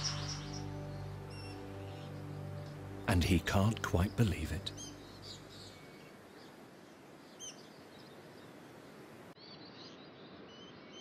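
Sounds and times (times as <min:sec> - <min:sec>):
high bird chirps: 0:00.0 - 0:02.4.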